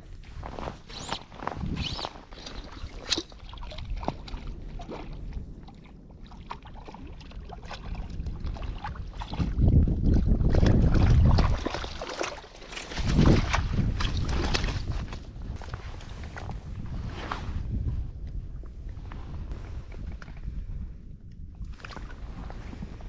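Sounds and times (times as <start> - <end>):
wind buffeting microphone: 0.0 - 23.0
water sloshing and splashing: 0.2 - 17.1, 21.6 - 23.0.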